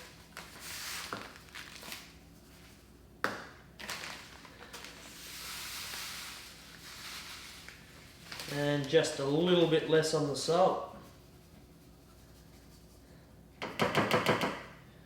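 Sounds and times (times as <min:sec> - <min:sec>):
salt pouring from container: 0:04.0 - 0:08.9.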